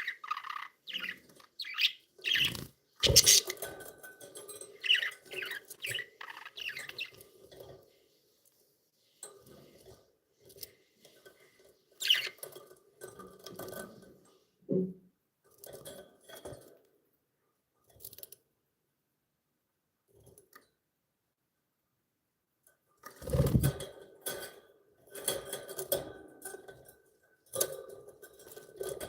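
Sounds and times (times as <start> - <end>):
budgies clicking and tapping: 0.0 - 7.8, 9.4 - 14.2.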